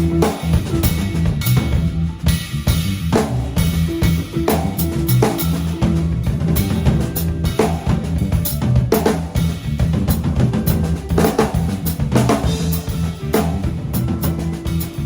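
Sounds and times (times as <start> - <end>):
bass guitar line: 0.0 - 15.0
drum kit beat: 0.0 - 15.0.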